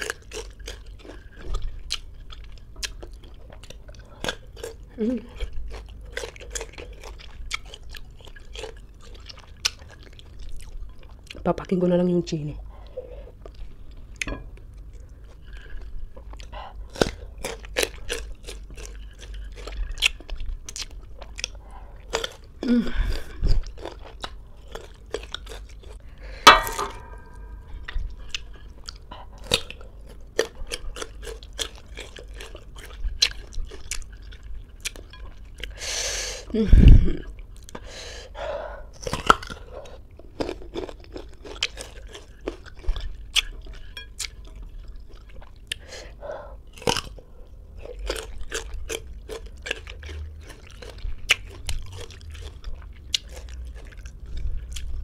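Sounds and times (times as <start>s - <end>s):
crunchy fruit chewing: 0.0s - 11.4s, 12.8s - 35.8s, 38.8s - 55.0s.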